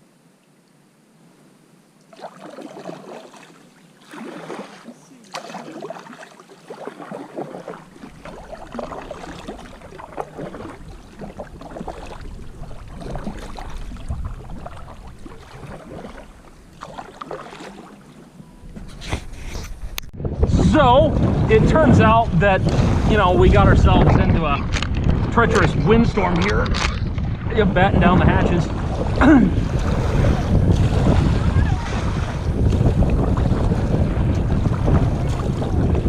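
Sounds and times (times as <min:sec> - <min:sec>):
water splashing around kayak: 0:02.0 - 0:36.0
wind buffeting microphone: 0:07.4 - 0:16.8, 0:18.5 - 0:36.0.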